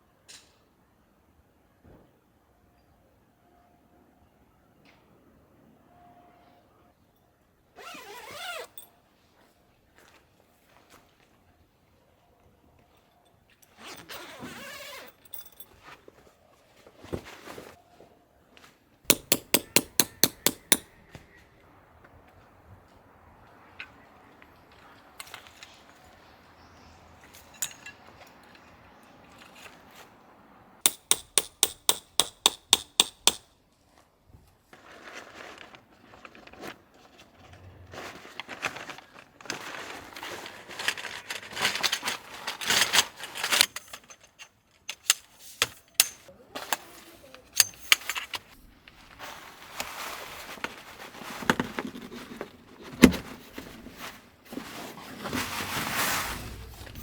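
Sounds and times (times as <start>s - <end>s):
hammer striking tent peg: 19.1s - 20.9s, 30.9s - 33.5s
scattered knocks: 19.1s - 20.9s
tent fabric rustling: 48.4s - 57.0s.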